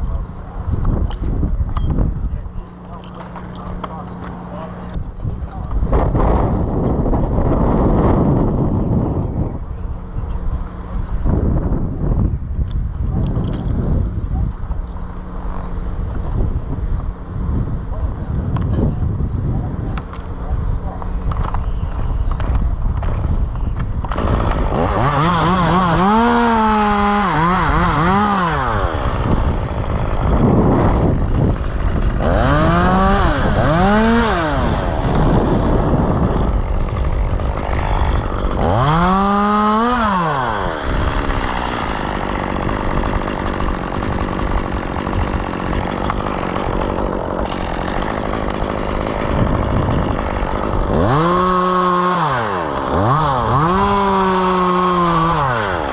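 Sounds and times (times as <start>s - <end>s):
chainsaw engine revving: 22.3s - 55.9s.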